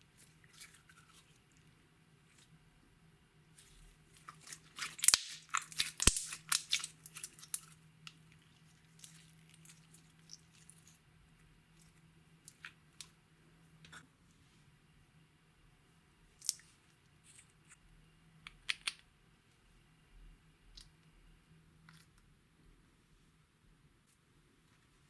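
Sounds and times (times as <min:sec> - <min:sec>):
slime squishing with sticky clicks: 0:04.1 - 0:08.2.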